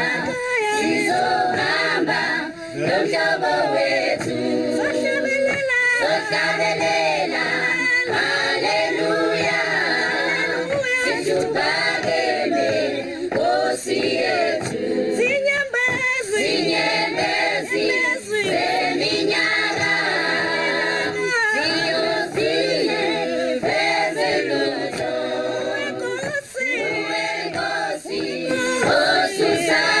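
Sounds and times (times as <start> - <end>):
choir singing in harmony: 0.0 - 30.0.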